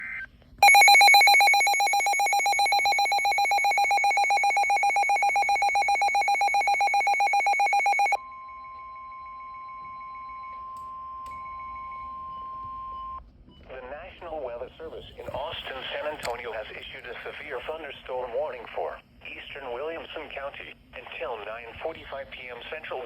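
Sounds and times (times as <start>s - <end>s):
steady high alarm tone: 0.6s - 12.5s.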